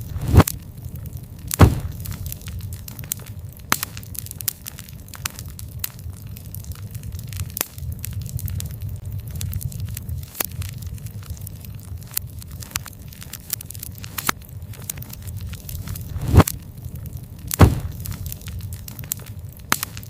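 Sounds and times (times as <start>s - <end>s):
burning wood popping: 0.0s - 20.0s
campfire crackling: 0.0s - 20.0s.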